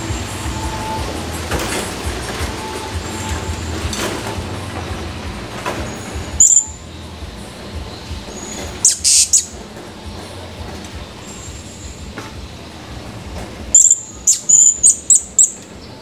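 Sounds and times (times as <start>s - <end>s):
rumbling background noise: 0.0s - 16.0s
parrot high-pitched calls: 8.8s - 9.6s, 13.8s - 15.6s.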